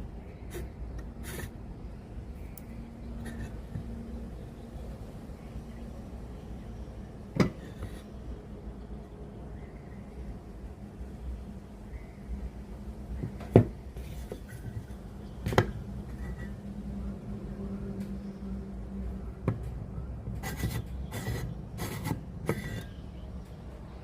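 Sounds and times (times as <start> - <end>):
faint steady hum: 0.0 - 24.0
short scraping rubs: 0.5 - 1.5, 20.4 - 22.9.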